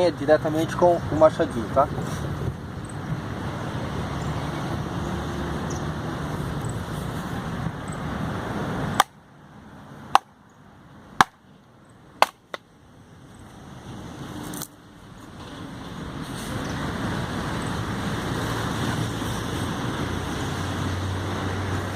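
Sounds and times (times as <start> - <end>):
hatchet chopping firewood: 8.9 - 9.2, 10.1 - 10.4, 11.2 - 11.5, 12.2 - 12.7.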